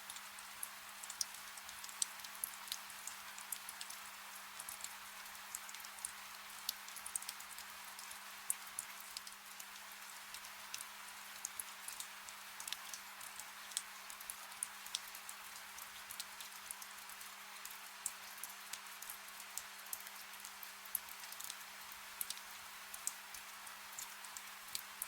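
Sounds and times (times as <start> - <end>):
soft rain hiss: 0.0 - 25.0.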